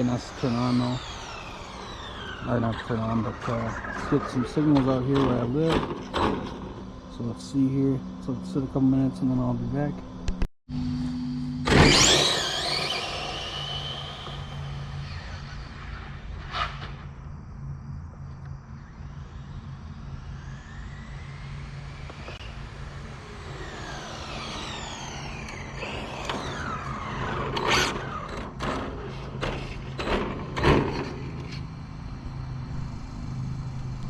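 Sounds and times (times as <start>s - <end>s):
steady low hum: 0.0s - 34.0s
vehicle passing by: 18.8s - 34.0s.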